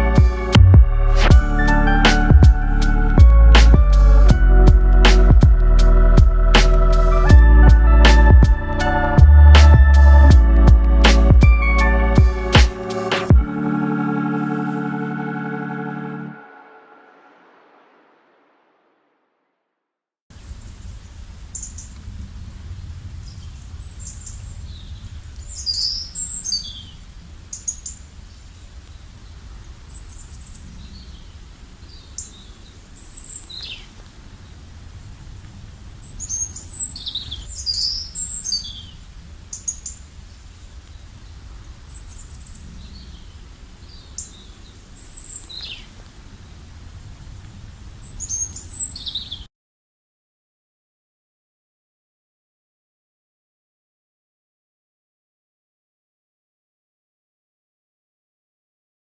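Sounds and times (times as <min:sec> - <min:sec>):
low rumble: 0:00.0 - 0:13.5
birds chirping: 0:36.0 - 0:46.1.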